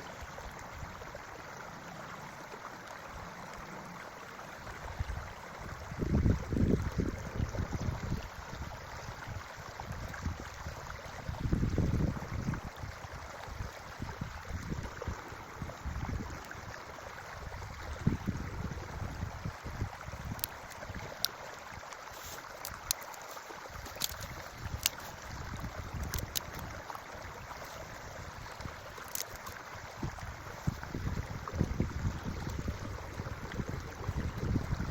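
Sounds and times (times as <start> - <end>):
creek running: 0.0 - 34.9
wind gusting on microphone: 5.0 - 8.3, 11.2 - 13.0, 17.4 - 21.2, 23.8 - 26.8, 29.9 - 34.9.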